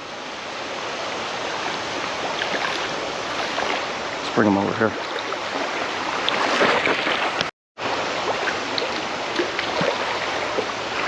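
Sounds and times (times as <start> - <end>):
river water rushing and splashing: 0.0 - 11.0
small water splashes: 1.5 - 4.0, 4.7 - 11.0.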